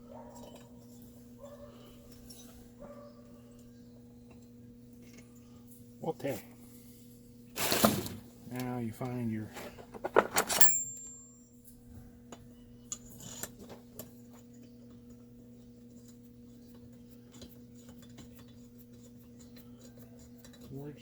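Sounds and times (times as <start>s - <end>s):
metal tools clinking: 10.2s - 11.4s.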